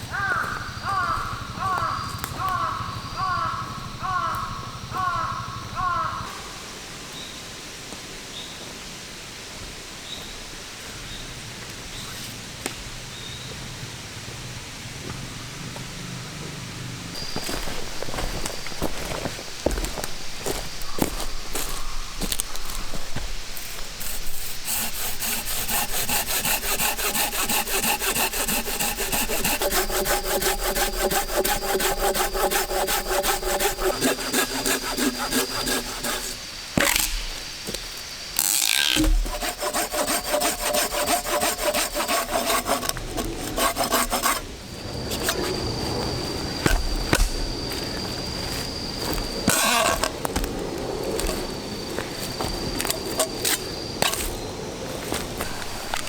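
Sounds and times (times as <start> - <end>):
steady woodland hiss: 0.0 - 56.0
hand saw cutting log: 23.6 - 37.4, 38.4 - 56.0
saw blade ringing whine: 23.6 - 56.0.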